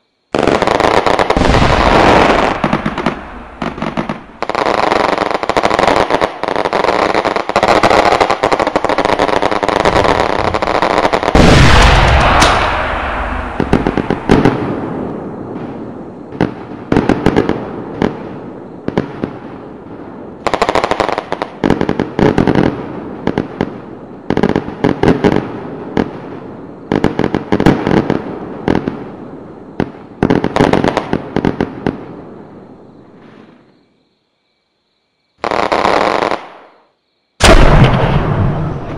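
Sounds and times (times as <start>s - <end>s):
firecracker string crackling: 0.4s - 14.8s
big low bang: 11.4s - 15.2s.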